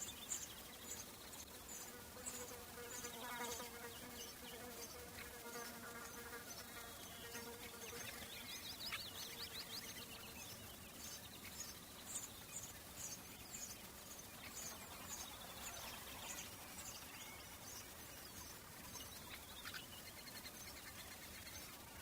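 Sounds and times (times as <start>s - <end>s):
insect buzzing: 0.0s - 10.5s
bird chirping: 0.0s - 22.0s
faint background hiss: 0.0s - 22.0s.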